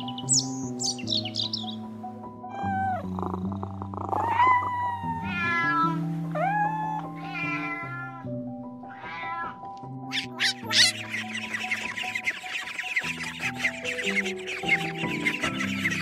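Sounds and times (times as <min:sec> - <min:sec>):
soft background music: 0:00.0 - 0:16.0
cat meowing: 0:02.5 - 0:03.2, 0:04.1 - 0:11.0.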